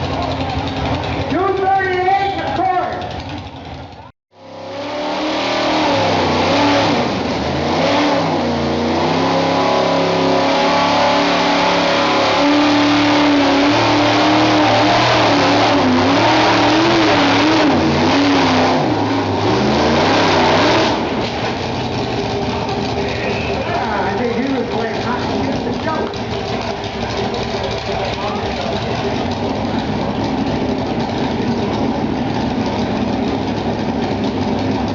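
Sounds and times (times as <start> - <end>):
truck engine revving under load: 3.0 - 34.9.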